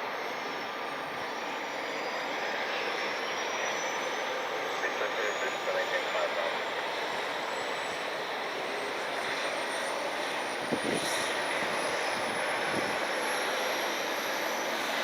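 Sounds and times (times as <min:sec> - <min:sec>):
high turbine whine: 0:00.0 - 0:15.0
jet engines running: 0:00.0 - 0:15.0.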